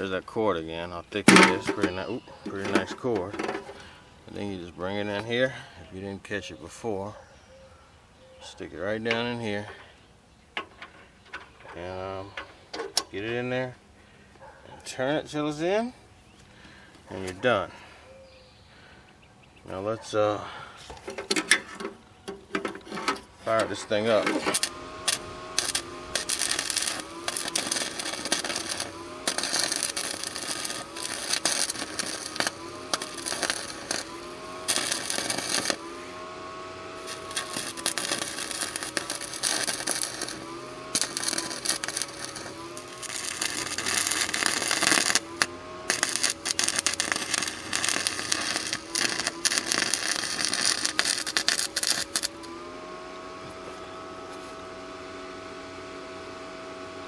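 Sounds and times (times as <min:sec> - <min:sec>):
welder humming: 0:00.0 - 0:07.0, 0:20.5 - 0:57.0
welder whining: 0:00.0 - 0:07.0, 0:08.5 - 0:13.8, 0:19.7 - 0:57.0
welding arc crackling: 0:01.1 - 0:05.2, 0:22.6 - 0:52.7.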